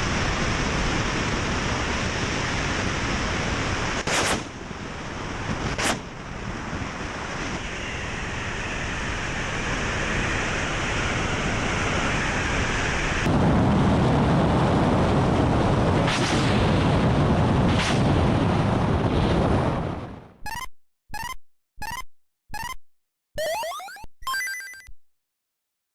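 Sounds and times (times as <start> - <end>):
helicopter rotor and turbine noise: 0.0 - 16.0
short electronic beeps: 20.4 - 25.0.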